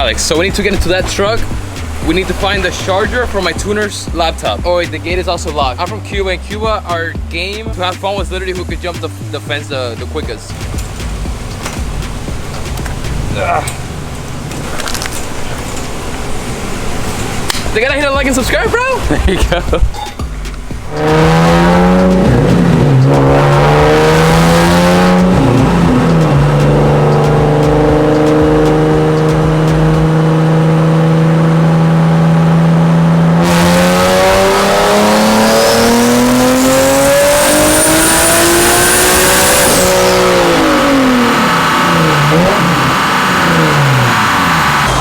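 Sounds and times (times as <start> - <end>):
car engine revving: 0.0 - 45.0
high turbo whistle: 37.1 - 45.0.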